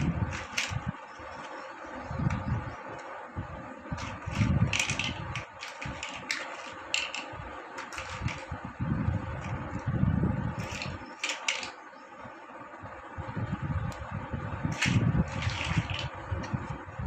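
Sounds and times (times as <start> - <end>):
plastic blocks clicking: 0.0 - 1.6, 4.0 - 8.5, 10.6 - 11.8, 14.7 - 16.2
steady background hum: 0.0 - 17.0.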